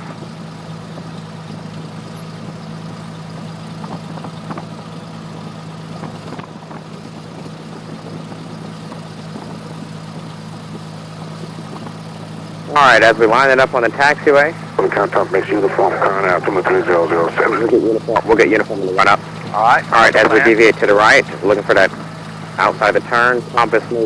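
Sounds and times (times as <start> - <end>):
aircraft engine droning: 11.4 - 24.0.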